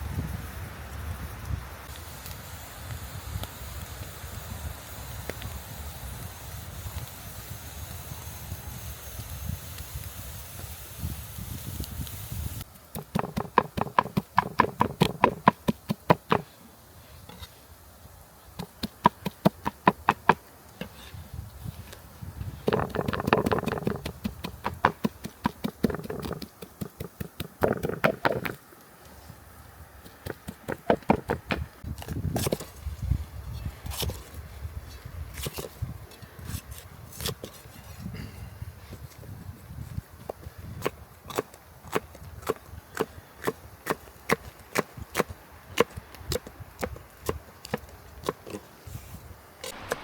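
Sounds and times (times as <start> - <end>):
hands handling objects: 12.8 - 16.6, 18.5 - 29.2, 30.0 - 32.8
blade chopping wood: 13.0 - 16.5, 18.6 - 21.0, 22.6 - 28.6, 30.2 - 32.6, 49.6 - 50.0.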